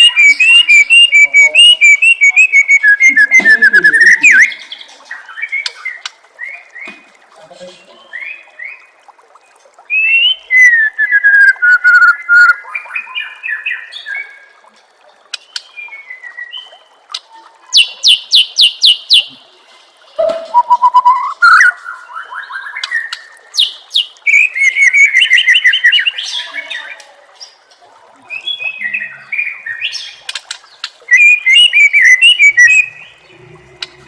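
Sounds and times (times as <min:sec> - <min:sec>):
songbird whistling song: 0:00.0 - 0:07.0, 0:09.9 - 0:14.4, 0:17.7 - 0:19.4, 0:20.2 - 0:26.8, 0:31.1 - 0:34.0.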